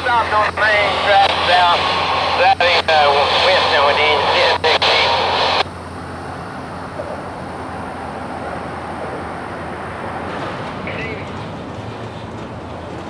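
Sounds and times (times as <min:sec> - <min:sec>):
freight cars rolling on track: 0:04.5 - 0:13.0.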